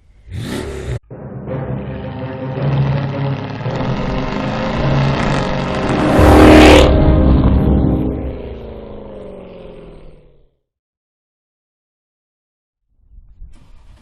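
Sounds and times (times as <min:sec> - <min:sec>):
car exhaust accelerating past: 0:01.6 - 0:10.4.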